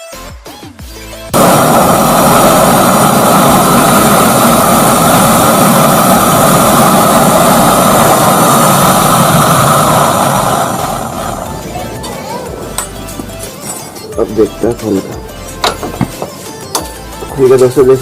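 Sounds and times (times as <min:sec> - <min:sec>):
background music: 0:00.0 - 0:01.4, 0:11.1 - 0:18.0
gas torch flame rushing: 0:01.3 - 0:14.3.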